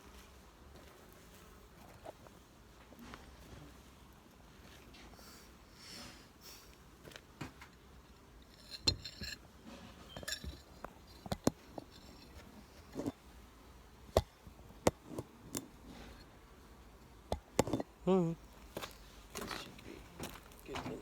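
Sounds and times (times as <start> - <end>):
phone handling knocks and clinks: 10.1 - 12.3.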